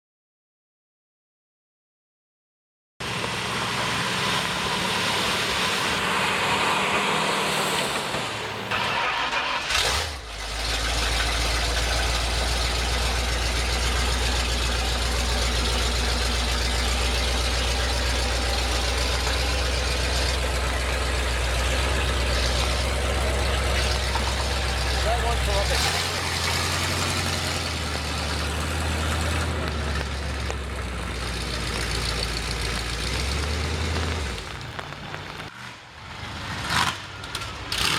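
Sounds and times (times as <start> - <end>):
truck engine idling: 3.0 - 35.5
low steady rumble: 10.8 - 35.5.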